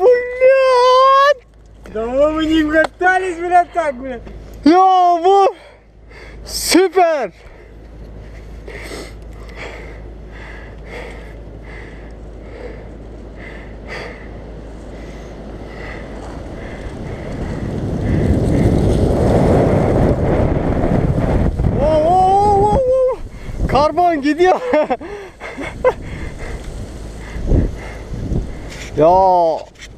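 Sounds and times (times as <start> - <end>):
bike tyres rolling: 7.3 - 29.9
wind on microphone: 15.7 - 24.2, 25.0 - 29.9.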